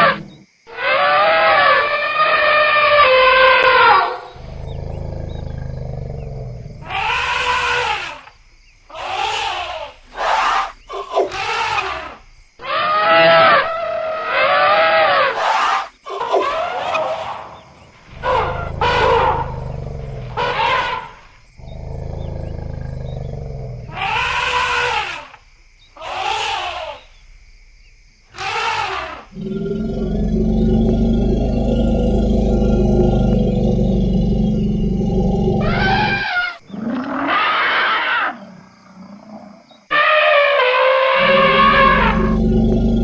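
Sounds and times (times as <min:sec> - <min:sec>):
low rumbling: 0:04.4 - 0:06.9, 0:18.1 - 0:20.6, 0:29.4 - 0:36.2
elephants trumpeting: 0:18.1 - 0:25.3, 0:28.4 - 0:38.4, 0:39.9 - 0:43.0.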